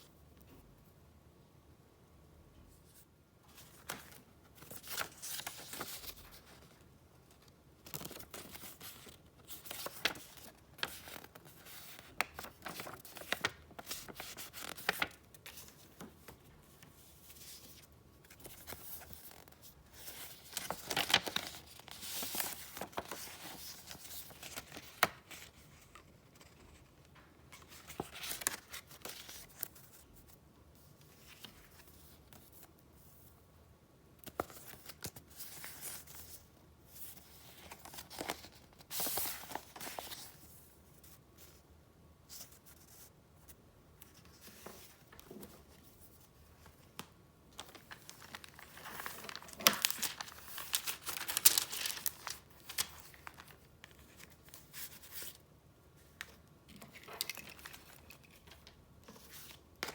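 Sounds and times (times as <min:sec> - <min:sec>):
paper rustling and crinkling: 0:03.5 - 0:30.3, 0:37.0 - 0:41.6, 0:44.0 - 0:55.4, 0:56.0 - 0:59.9.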